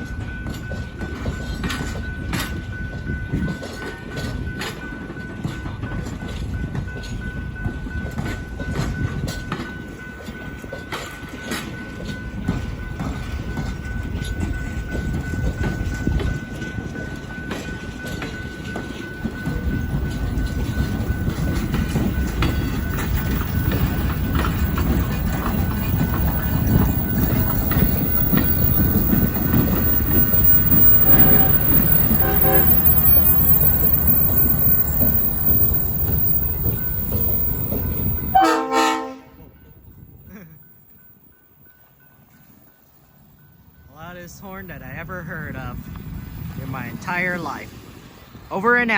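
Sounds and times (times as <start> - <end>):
train wheels rumbling on rail: 0.0 - 48.9
train horn: 29.8 - 34.8, 38.3 - 39.5.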